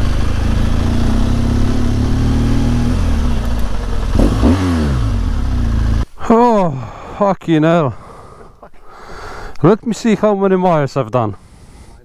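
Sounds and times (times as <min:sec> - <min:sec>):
motorcycle engine running: 0:00.0 - 0:06.0
motorcycle engine revving: 0:00.0 - 0:06.1.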